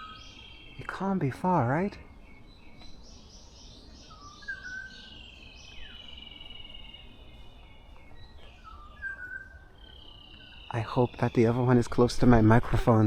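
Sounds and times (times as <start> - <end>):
small birds chirping: 0.0 - 13.0
whistled bird phrase: 8.6 - 11.8.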